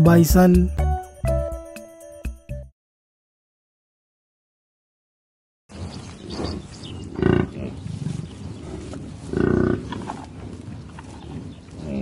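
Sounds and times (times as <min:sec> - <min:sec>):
bison bellowing: 0:06.4 - 0:12.0.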